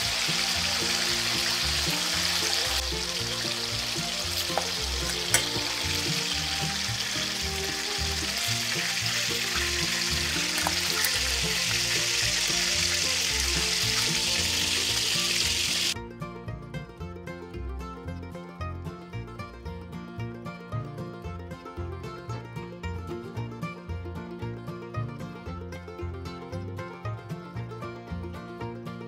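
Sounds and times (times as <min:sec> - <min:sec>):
meat sizzling in hot oil: 0:00.0 - 0:16.0
metal tongs clicking on pot: 0:04.4 - 0:05.8.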